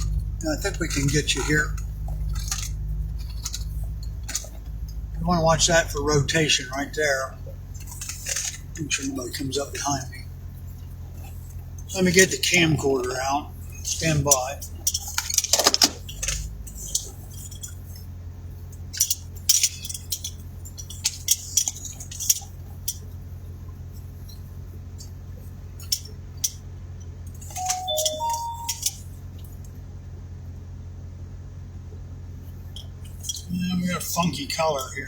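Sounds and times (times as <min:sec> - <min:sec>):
steady low hum: 0:00.0 - 0:35.0
electronic beeps: 0:27.5 - 0:28.9.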